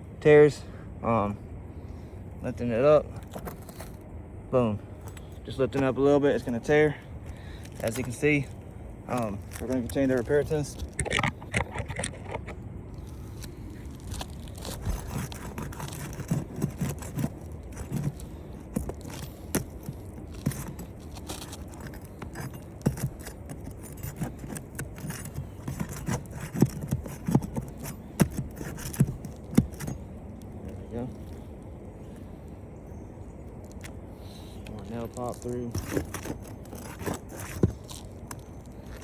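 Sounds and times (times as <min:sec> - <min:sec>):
tool scraping under shingles: 0:05.1 - 0:30.1, 0:33.8 - 0:39.0
shingles tearing: 0:09.1 - 0:30.0, 0:34.9 - 0:39.0.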